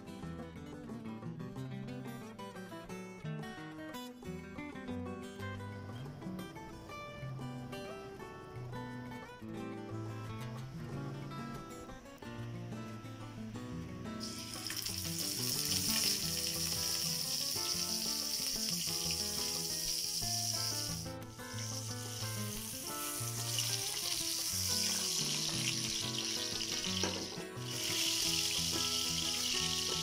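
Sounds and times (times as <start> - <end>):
meat sizzling in hot oil: 14.2 - 30.0.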